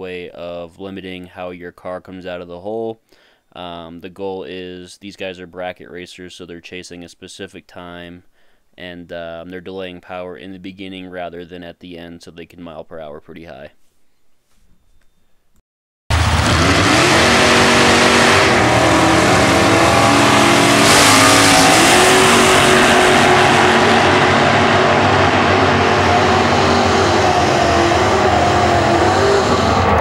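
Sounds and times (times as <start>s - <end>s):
drag race car engines revving: 16.1s - 30.0s.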